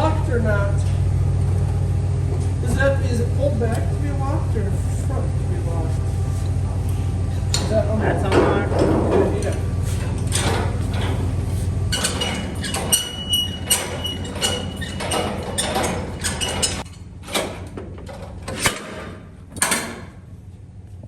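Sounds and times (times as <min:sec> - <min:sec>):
low engine hum: 0:00.0 - 0:17.2
metal parts clanking: 0:07.3 - 0:20.1.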